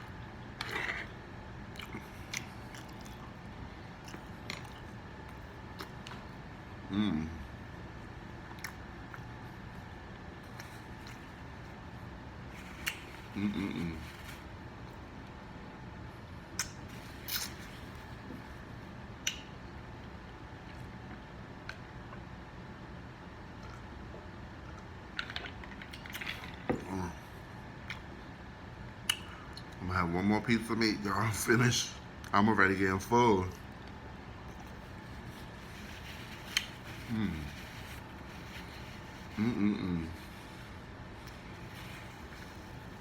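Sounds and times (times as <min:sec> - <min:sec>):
person chewing food: 0:00.6 - 0:06.4, 0:08.5 - 0:09.7, 0:10.4 - 0:11.8, 0:33.6 - 0:39.4
wet mouth eating noises: 0:01.6 - 0:06.4, 0:16.5 - 0:18.4, 0:29.0 - 0:29.8.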